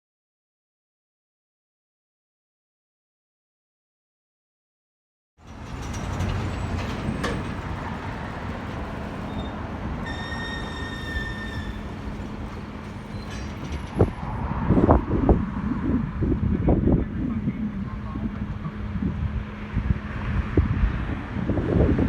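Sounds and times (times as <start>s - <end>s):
wheels squealing: 5.4s - 14.2s
locomotive rumbling: 5.4s - 22.0s
wind buffeting microphone: 11.8s - 22.0s.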